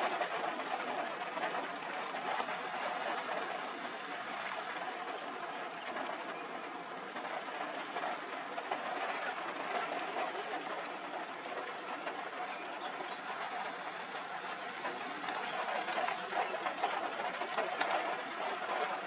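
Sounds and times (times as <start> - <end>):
thin high whine: 2.2 - 4.8, 13.0 - 16.6
waterfall roaring: 13.0 - 19.0.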